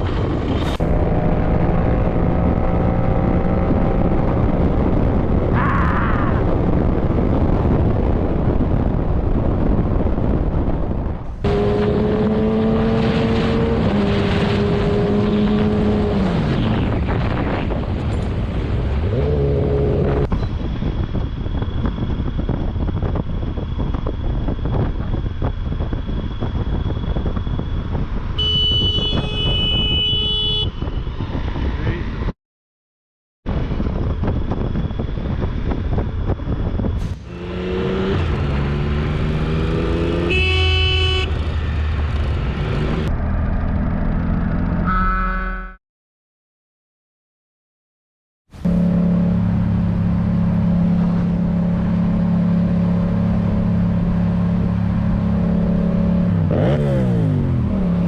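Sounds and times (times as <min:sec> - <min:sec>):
wind rush: 0:00.0 - 0:32.3, 0:33.5 - 0:43.1
motorcycle engine revving: 0:11.4 - 0:16.7, 0:37.0 - 0:45.7, 0:48.6 - 0:58.0
car horn honking: 0:28.4 - 0:30.8, 0:40.0 - 0:41.4, 0:44.8 - 0:45.8.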